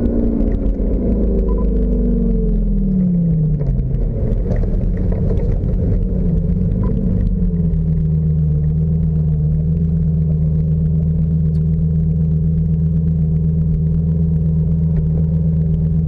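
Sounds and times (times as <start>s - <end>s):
sports car engine running: 0.0s - 16.0s.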